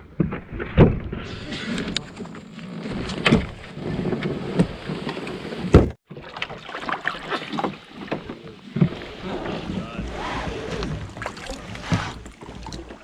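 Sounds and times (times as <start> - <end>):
water: 0.0 - 13.0
knocks against canoe hull: 5.8 - 6.0.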